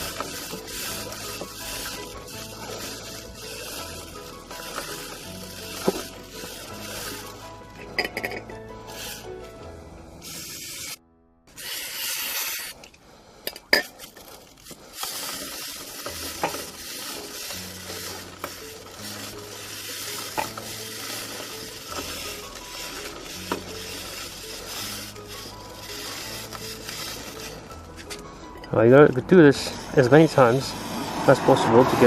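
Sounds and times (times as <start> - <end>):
stiff brush scrubbing a chain: 0.0 - 9.5, 10.2 - 28.9
spray hiss: 10.2 - 11.0, 11.6 - 12.9.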